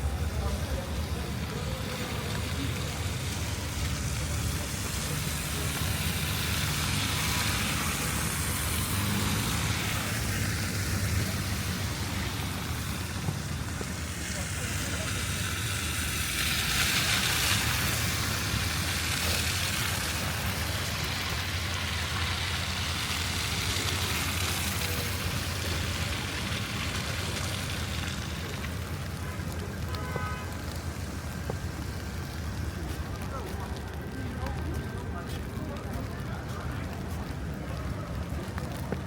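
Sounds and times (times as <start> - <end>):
car tyres hissing on slush: 0.0 - 39.0
low city rumble: 0.0 - 39.0.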